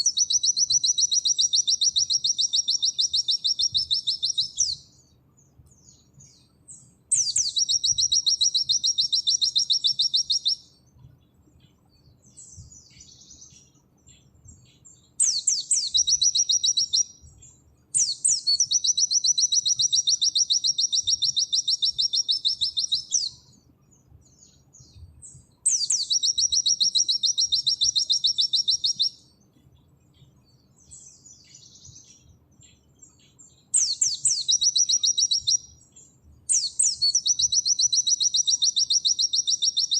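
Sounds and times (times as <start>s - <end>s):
bird singing high rapid trills: 0.0s - 39.9s
soft bird twittering: 0.0s - 39.9s.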